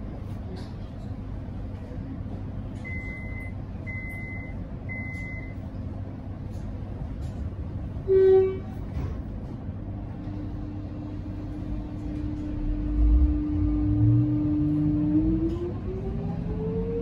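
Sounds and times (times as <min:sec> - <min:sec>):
electric train rumbling: 0:00.0 - 0:17.0
train horn blast: 0:08.0 - 0:08.8.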